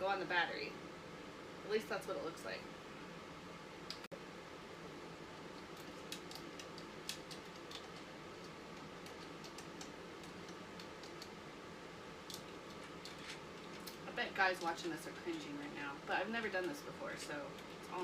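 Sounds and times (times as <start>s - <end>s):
steady low hum: 0.0s - 18.0s
metal cable terminals clicking: 5.8s - 11.3s.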